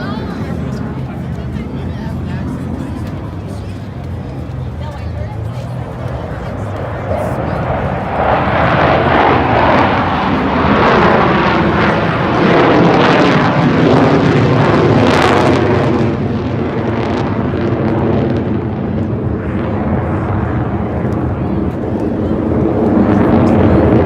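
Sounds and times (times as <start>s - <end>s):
jet aircraft flying past: 0.0s - 24.0s.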